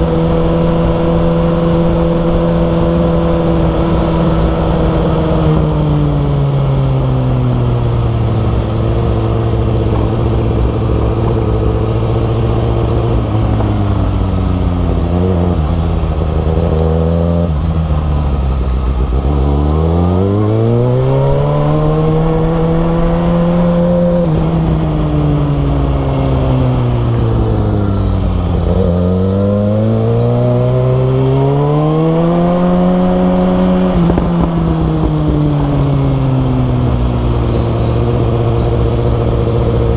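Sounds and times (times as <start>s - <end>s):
motorcycle engine revving: 0.0s - 39.9s
wind rushing: 20.3s - 29.2s.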